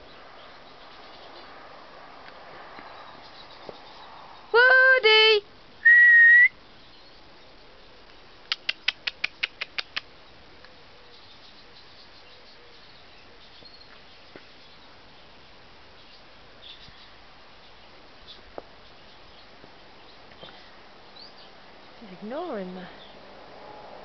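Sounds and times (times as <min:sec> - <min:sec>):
person whistling: 0:05.8 - 0:06.5
short sharp clicks: 0:08.5 - 0:10.1.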